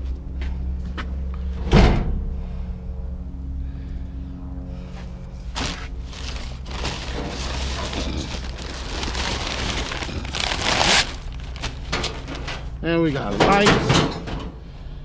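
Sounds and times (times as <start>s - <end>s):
steady low hum: 0.0s - 15.0s
junk scraping and rustling: 5.5s - 14.6s.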